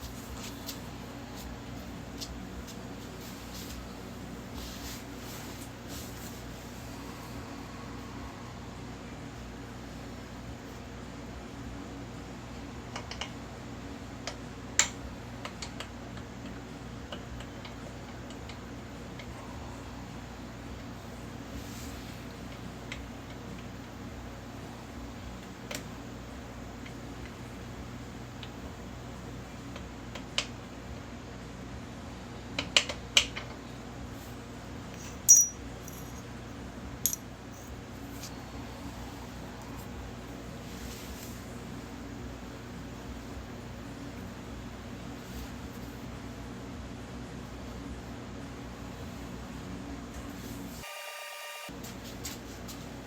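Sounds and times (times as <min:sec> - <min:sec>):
low background hum: 0:00.0 - 0:50.8
hand tools and metal parts clicking: 0:35.0 - 0:36.2, 0:37.1 - 0:37.7.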